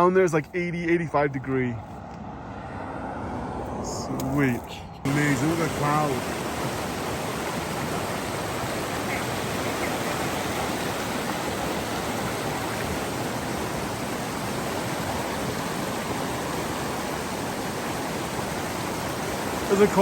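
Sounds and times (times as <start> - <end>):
stream water rushing: 5.0 - 20.0.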